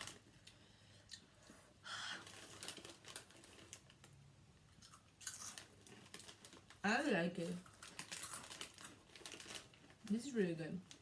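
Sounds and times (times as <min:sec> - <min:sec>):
crunching snack chips: 0:02.2 - 0:04.1, 0:04.8 - 0:11.0.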